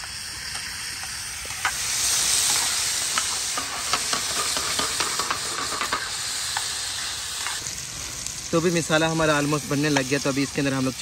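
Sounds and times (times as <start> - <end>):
vegetables sizzling in hot oil: 0.0 - 11.0
metal spoon scraping a pan: 1.5 - 7.6.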